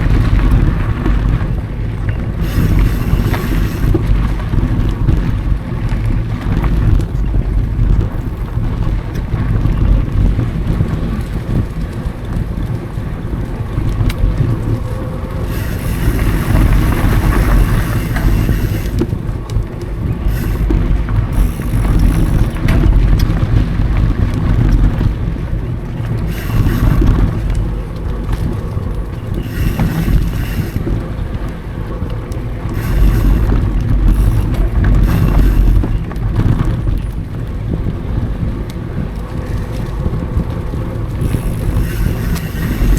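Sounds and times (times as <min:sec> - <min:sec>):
mountain bike rumbling and rattling: 0:00.0 - 0:42.9
wind buffeting microphone: 0:00.0 - 0:42.9
high hiss: 0:02.4 - 0:04.0, 0:15.4 - 0:19.1, 0:20.2 - 0:22.5, 0:26.3 - 0:27.4, 0:29.4 - 0:31.0, 0:32.8 - 0:35.9, 0:41.2 - 0:42.9.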